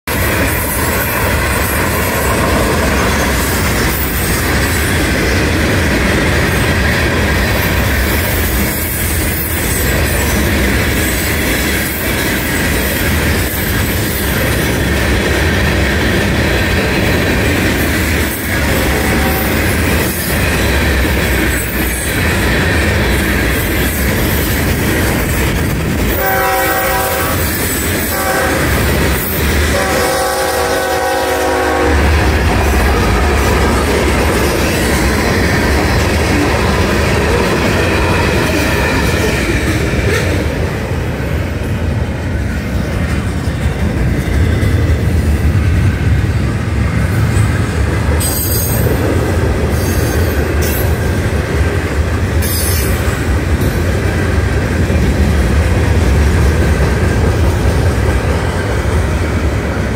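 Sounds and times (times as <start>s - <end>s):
freight cars rumbling over rails: 0.0s - 59.9s
locomotive horn chord: 18.7s - 19.7s, 26.2s - 27.4s, 28.1s - 28.8s, 29.7s - 33.6s.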